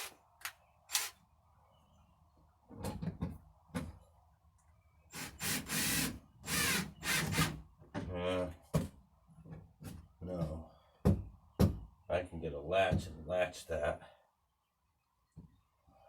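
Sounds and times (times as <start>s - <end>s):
power drill driving screws into wood: 0.9s - 1.2s, 5.1s - 7.6s.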